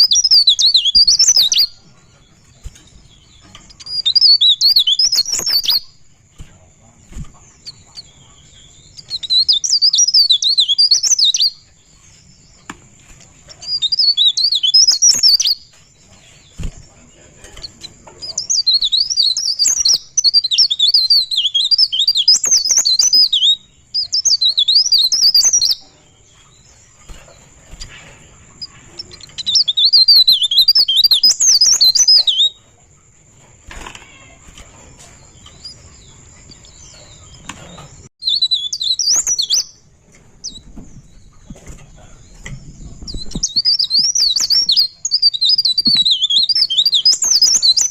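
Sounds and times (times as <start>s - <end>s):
songbird twittering: 0.0s - 47.9s.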